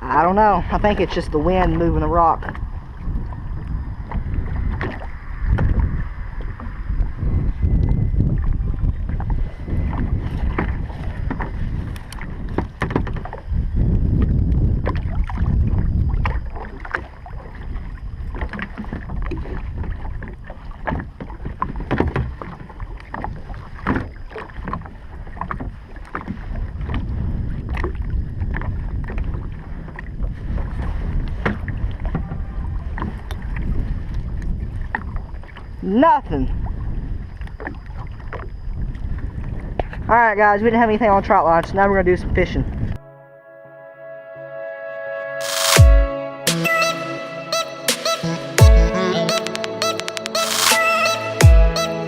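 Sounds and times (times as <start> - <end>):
wind buffeting microphone: 0.0 - 43.0
knocks and clicks from kayak: 8.4 - 13.4, 14.2 - 15.5, 18.3 - 35.4.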